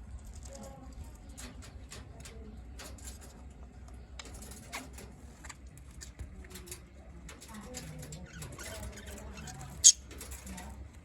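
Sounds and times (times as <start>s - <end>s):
budgerigars chirping: 9.8s - 10.0s.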